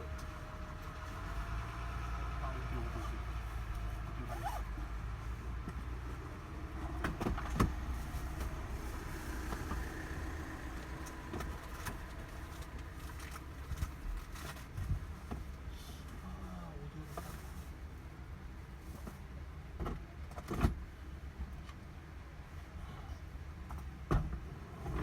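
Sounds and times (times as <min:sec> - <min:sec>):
motor vehicle rumble: 0:00.0 - 0:16.3, 0:23.6 - 0:25.0.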